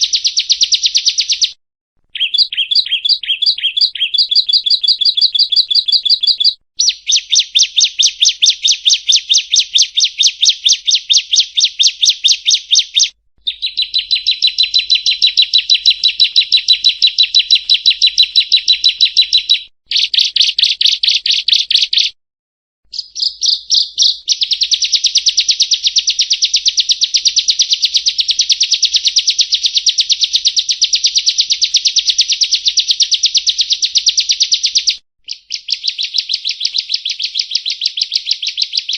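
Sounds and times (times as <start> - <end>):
bird singing sharp high notes: 2.2 - 22.2.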